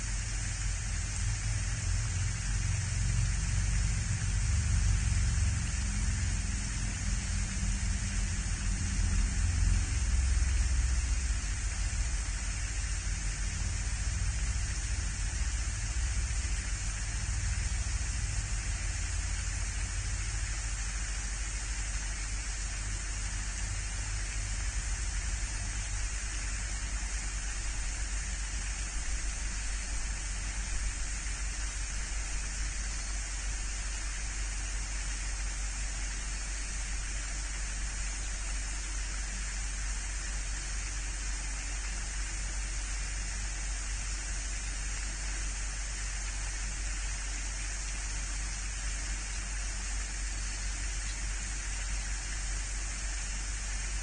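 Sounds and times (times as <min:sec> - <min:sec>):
steady outdoor hiss: 0:00.0 - 0:54.0
low rumble: 0:00.2 - 0:32.8.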